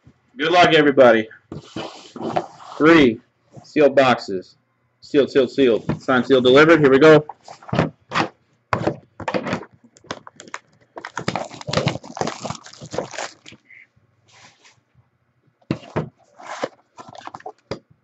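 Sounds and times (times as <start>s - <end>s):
plastic shrink wrap crinkling: 9.4s - 13.7s, 16.4s - 17.7s
cardboard box opening: 10.4s - 13.6s.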